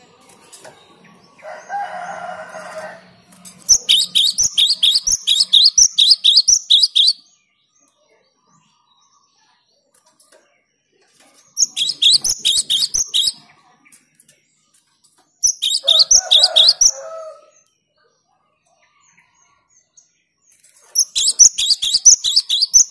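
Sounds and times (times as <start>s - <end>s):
tit chirping song: 3.6s - 7.3s, 11.6s - 13.4s, 15.4s - 17.2s, 21.0s - 22.9s.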